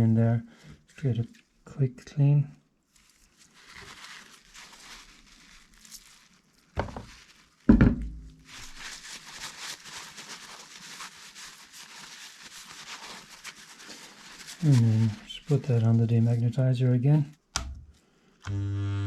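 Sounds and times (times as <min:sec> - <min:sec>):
heavy thumps: 0:07.7 - 0:08.4.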